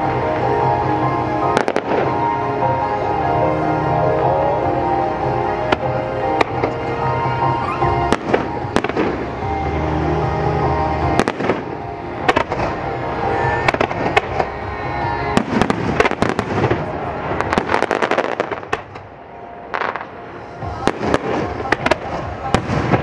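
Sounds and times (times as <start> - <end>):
fireworks bursting with crackling: 0.0 - 23.0.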